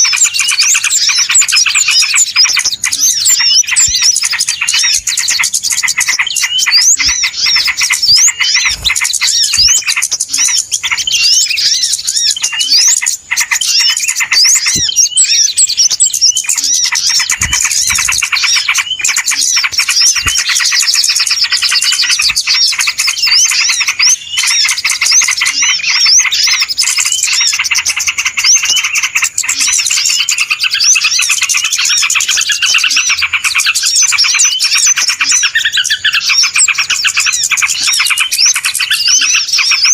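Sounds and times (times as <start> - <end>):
many small birds chirping: 0.0 - 39.9.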